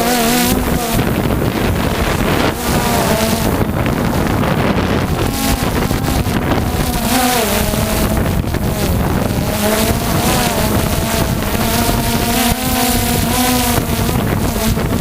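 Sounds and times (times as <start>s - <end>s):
boat motor droning: 0.0s - 15.0s
wind buffeting microphone: 0.0s - 15.0s.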